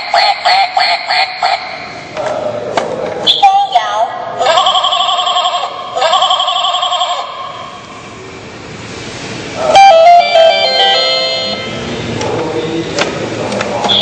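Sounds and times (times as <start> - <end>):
electronic toy organ tones: 9.7 - 11.8
stepped electronic notes: 9.7 - 11.9.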